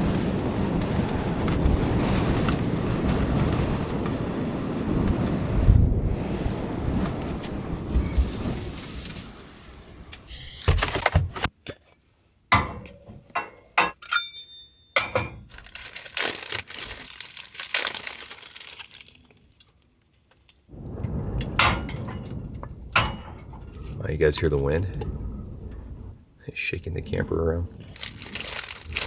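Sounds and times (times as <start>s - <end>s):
wind gusts buffeting camper: 0.0s - 11.5s, 20.7s - 29.0s
small hard objects clinking: 12.5s - 20.6s, 21.5s - 24.9s, 27.8s - 29.0s.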